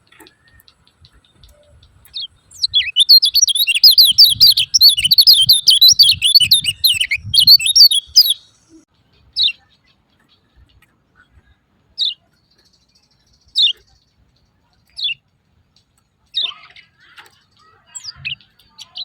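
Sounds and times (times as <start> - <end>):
bird chattering call: 2.6 - 8.4.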